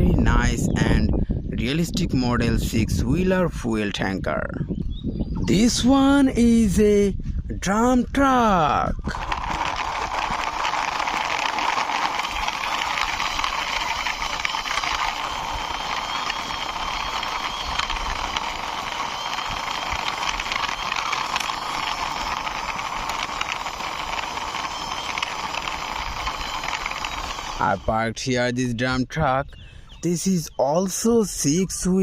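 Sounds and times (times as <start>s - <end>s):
toy truck wheels rattling: 9.0s - 28.0s.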